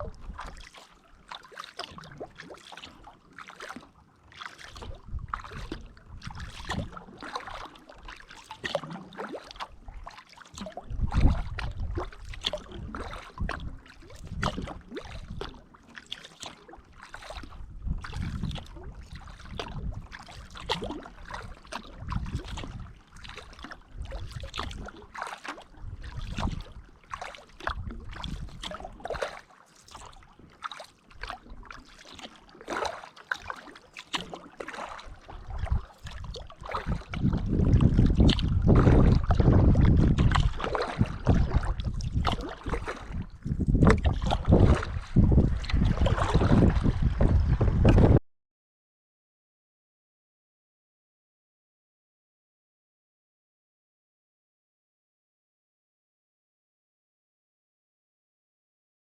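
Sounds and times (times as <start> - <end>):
water dripping from paddle: 0.0 - 46.3
kayak paddle strokes through water: 0.0 - 48.2.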